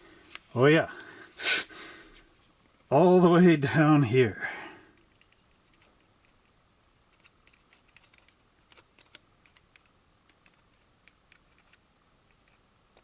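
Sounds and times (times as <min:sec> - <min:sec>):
plastic parts clicking and tapping: 0:04.9 - 0:13.0.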